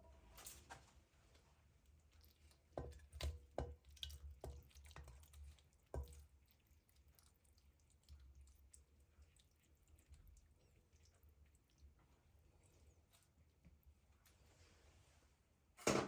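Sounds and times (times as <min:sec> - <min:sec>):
kitchenware knocks and clicks: 0:15.8 - 0:16.0.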